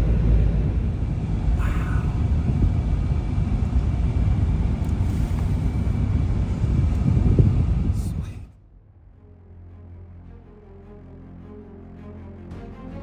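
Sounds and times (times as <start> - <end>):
truck driving road noise: 0.0 - 8.5.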